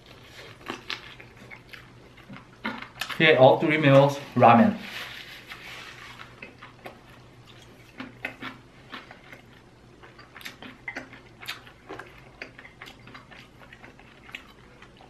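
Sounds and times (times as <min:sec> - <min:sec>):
mouth chewing wetly: 0:06.2 - 0:15.0.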